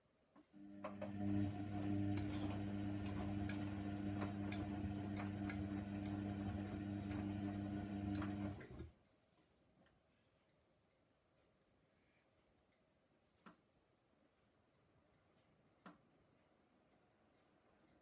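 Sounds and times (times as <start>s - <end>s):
drain pump humming: 0.6s - 8.9s.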